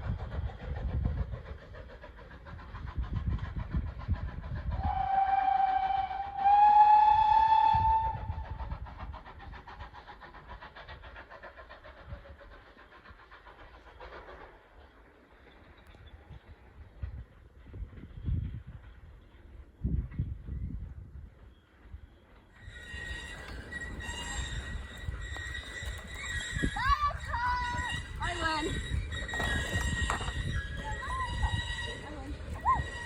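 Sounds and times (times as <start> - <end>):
train rumble: 0.0 - 33.0
train whistle: 4.8 - 8.7, 22.6 - 33.0
wheels clicking on rails: 8.1 - 33.0.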